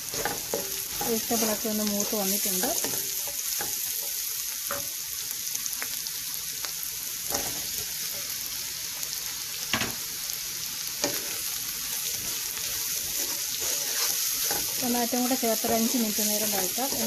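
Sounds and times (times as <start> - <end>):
vegetables sizzling in a pan: 0.0 - 17.0
wooden spatula scraping a pan: 0.1 - 4.9, 11.0 - 17.0.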